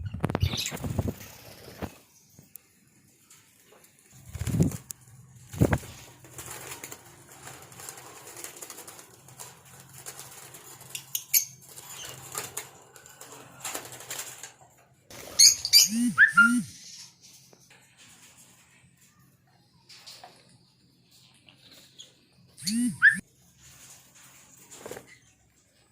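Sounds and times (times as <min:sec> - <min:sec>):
birds flapping wings: 0:00.2 - 0:02.1, 0:03.7 - 0:16.6, 0:23.6 - 0:25.3
shrill bird chirps: 0:15.4 - 0:17.2, 0:22.6 - 0:23.2.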